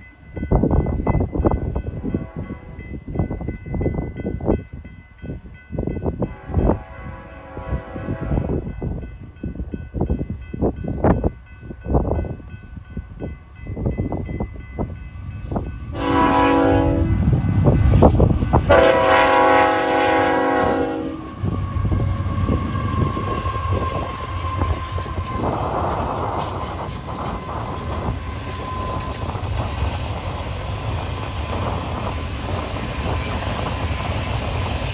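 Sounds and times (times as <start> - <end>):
train rumbling past: 0.0 - 34.9
locomotive air horn blasts: 2.2 - 2.8, 6.3 - 8.6, 15.9 - 24.8.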